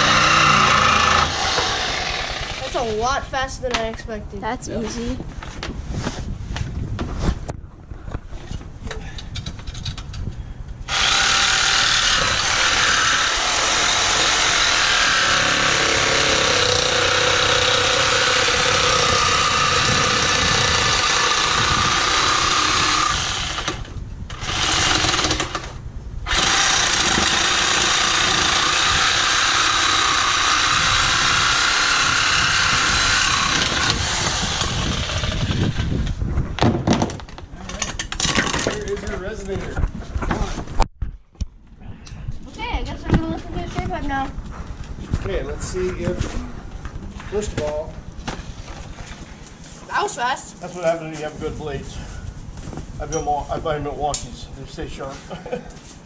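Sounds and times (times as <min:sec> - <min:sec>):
power saw cutting metal pipe: 0:00.0 - 0:03.0, 0:10.9 - 0:25.7, 0:26.3 - 0:35.9.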